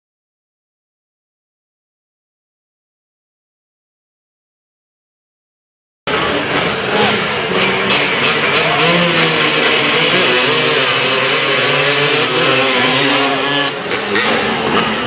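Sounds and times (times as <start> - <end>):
motorcycle engines revving: 6.1 - 15.0.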